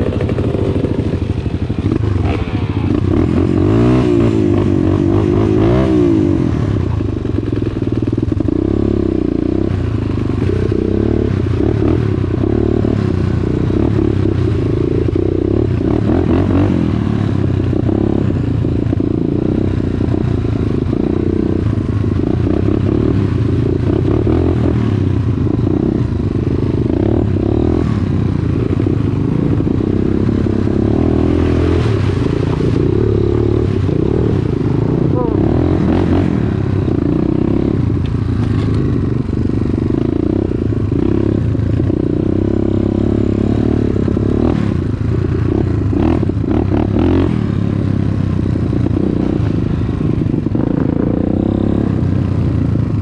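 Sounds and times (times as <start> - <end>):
dirt bike engine revving: 0.0 - 6.9, 8.4 - 18.5, 19.1 - 52.1
bike knocking and rattling: 38.0 - 39.3.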